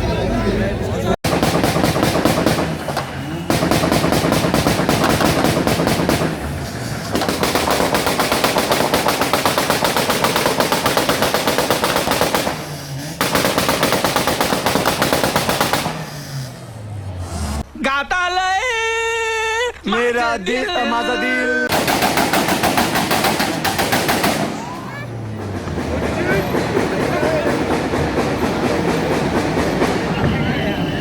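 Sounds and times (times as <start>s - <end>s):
car exhaust popping and banging: 1.2s - 16.6s, 21.7s - 30.7s.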